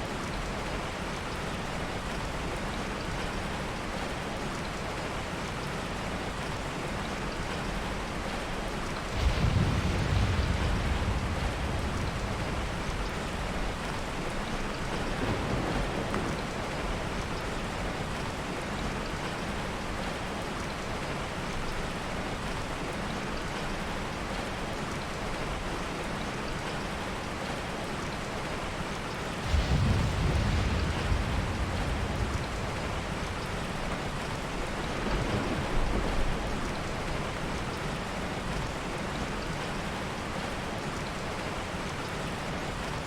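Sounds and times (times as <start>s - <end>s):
low thunder rumble: 9.0s - 18.4s, 29.4s - 37.8s
heavy rain hissing: 9.0s - 19.1s, 29.3s - 38.2s.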